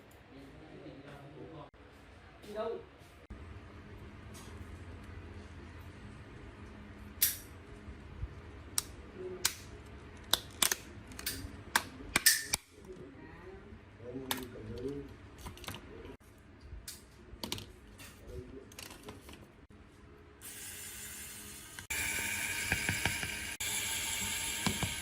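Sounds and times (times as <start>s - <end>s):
small tools clicking and snapping: 8.8s - 12.7s.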